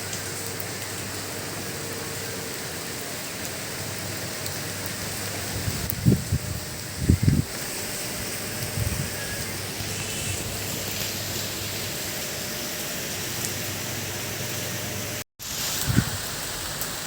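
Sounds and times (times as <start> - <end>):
heavy rain hiss: 0.0 - 17.0.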